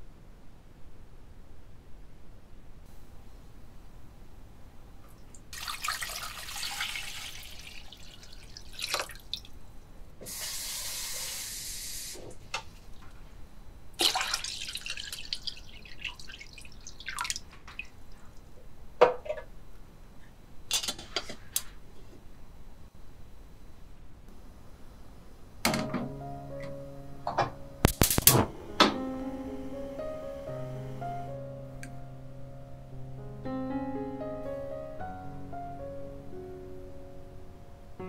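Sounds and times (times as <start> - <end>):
water pouring into metal pot: 5.5 - 9.5, 14.0 - 17.4.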